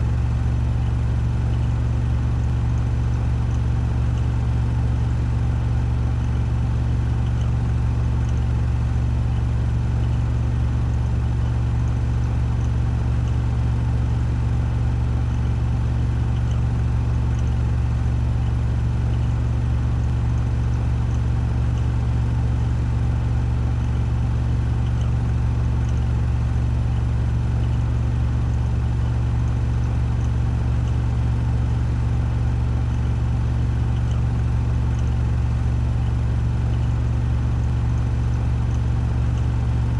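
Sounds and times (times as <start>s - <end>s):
washing machine spin hum: 0.0s - 39.9s.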